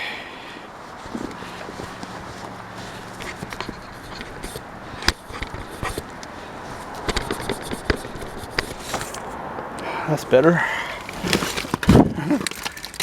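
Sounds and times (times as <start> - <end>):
camera handling clicks and rubs: 3.2 - 9.4.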